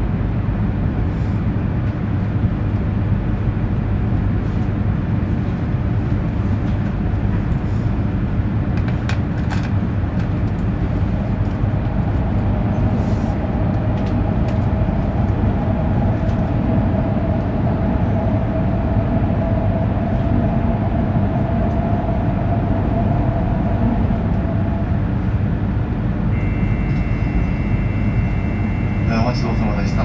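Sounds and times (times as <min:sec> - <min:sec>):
passing train rumble and hum: 0:00.0 - 0:30.0
steady high tones: 0:26.3 - 0:30.0.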